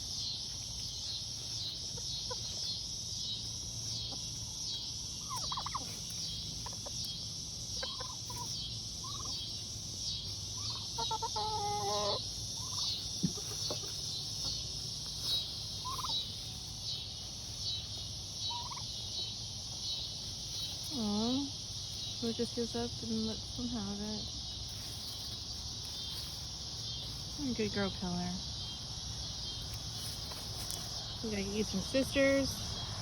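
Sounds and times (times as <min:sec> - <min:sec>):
insects chirping: 0:00.0 - 0:33.0
soft turkey calls: 0:03.9 - 0:21.4
turkey gobbling: 0:04.0 - 0:16.4, 0:18.4 - 0:19.3.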